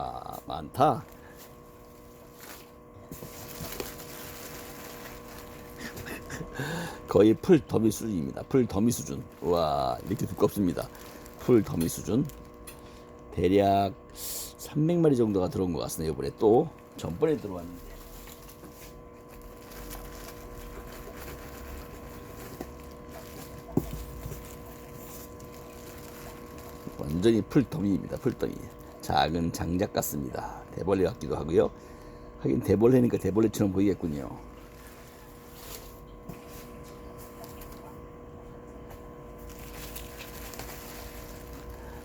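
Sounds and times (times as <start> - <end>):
steady low hum: 0.0 - 42.0
packaging rustling and clicking: 2.3 - 6.0, 9.3 - 13.2, 18.0 - 29.0, 39.5 - 41.8.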